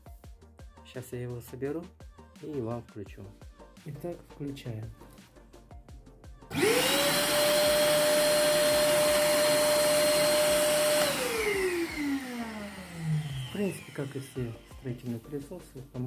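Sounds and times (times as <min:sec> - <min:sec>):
vacuum motor whine: 0:06.5 - 0:15.0.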